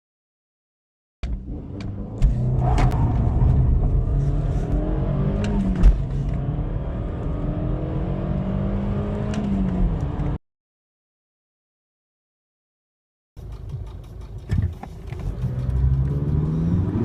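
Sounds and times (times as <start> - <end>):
car engine accelerating: 1.3 - 10.4, 13.4 - 17.0
gear shift knock: 13.4 - 16.0.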